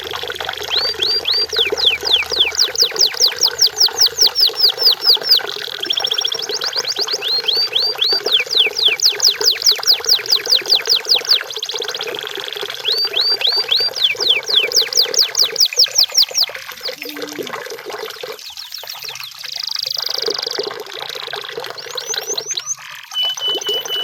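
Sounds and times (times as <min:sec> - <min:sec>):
canary singing: 0:00.6 - 0:12.0, 0:12.8 - 0:17.5, 0:22.0 - 0:24.0.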